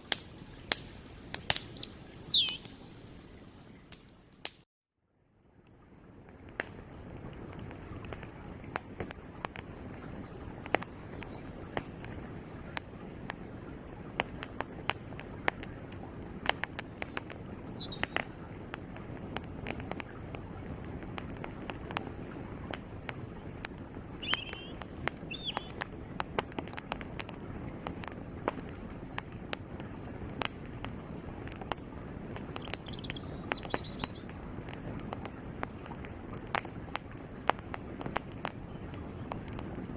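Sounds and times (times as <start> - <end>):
flowing creek: 0.0 - 4.5, 5.2 - 39.9
campfire crackling and popping: 0.0 - 4.6, 5.5 - 39.9
small birds chirping: 0.4 - 4.4, 7.8 - 18.8, 21.9 - 25.9, 32.2 - 36.4.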